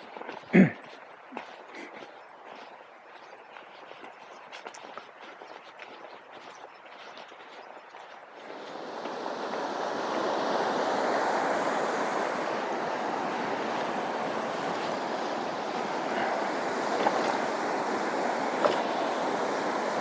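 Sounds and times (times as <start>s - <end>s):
stream water rushing: 0.0s - 20.0s.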